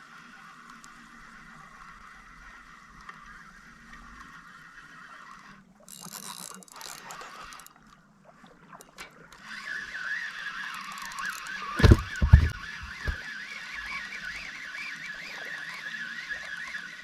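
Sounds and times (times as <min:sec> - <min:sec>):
fishing reel whirring: 0:00.0 - 0:07.8, 0:08.8 - 0:17.0
rustling: 0:11.8 - 0:13.2.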